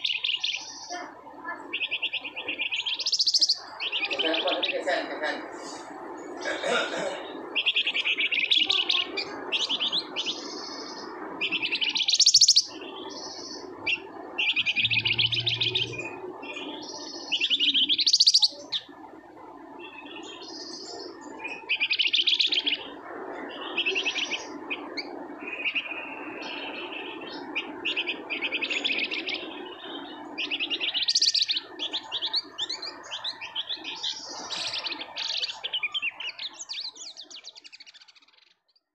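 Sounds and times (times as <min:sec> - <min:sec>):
low background noise: 0:00.0 - 0:38.9
songbird rattling trills: 0:01.7 - 0:05.0, 0:07.5 - 0:18.9, 0:27.4 - 0:38.2.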